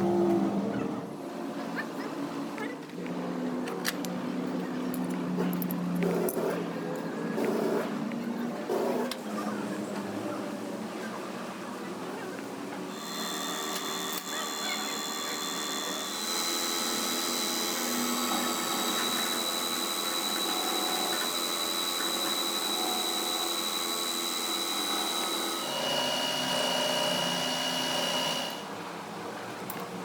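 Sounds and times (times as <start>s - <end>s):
power tool whining: 12.9s - 28.7s.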